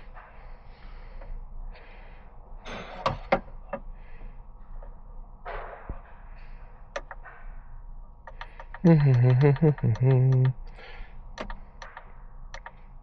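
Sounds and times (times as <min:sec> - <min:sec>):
sharp clicks and knocks: 0:07.0 - 0:07.3, 0:08.2 - 0:10.5, 0:11.4 - 0:12.8.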